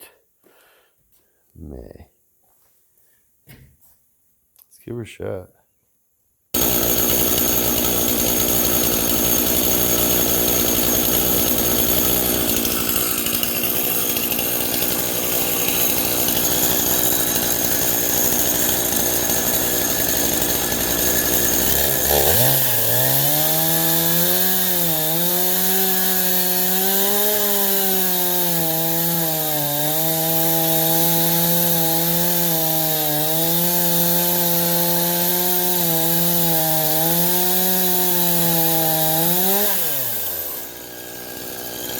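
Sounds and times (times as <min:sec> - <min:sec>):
chainsaw cutting through log: 0:06.6 - 0:41.9.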